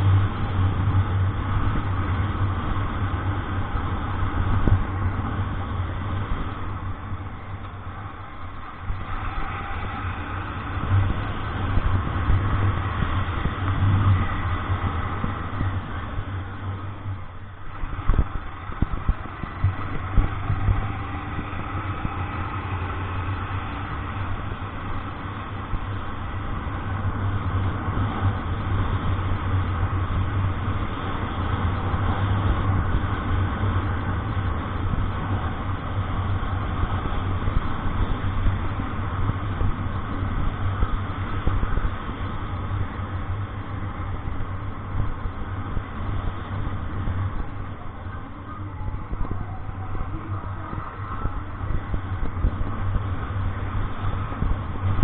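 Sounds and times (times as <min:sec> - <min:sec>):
road noise: 0:00.0 - 0:55.0
vehicle engine humming: 0:00.0 - 0:55.0.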